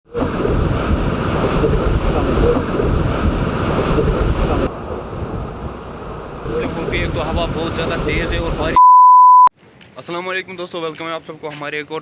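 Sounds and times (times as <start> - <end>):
wind buffeting microphone: 0.1 - 8.6.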